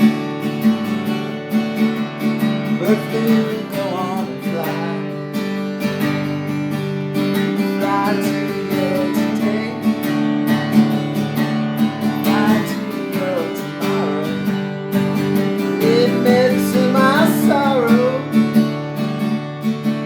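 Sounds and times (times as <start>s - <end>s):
acoustic guitar strumming blues: 0.0s - 20.0s.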